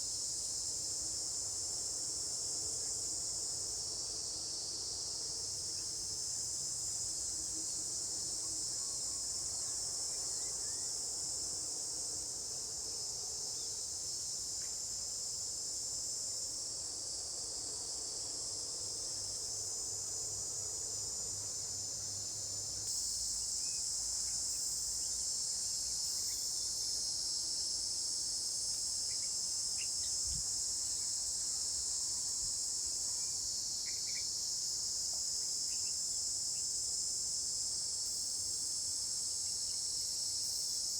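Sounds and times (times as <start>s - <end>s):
insects chirring: 28.5s - 40.9s.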